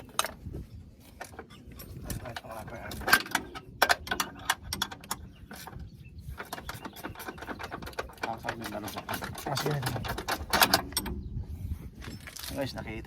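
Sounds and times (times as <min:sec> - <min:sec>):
sharp metal knocks: 0:02.1 - 0:05.8, 0:06.4 - 0:11.3.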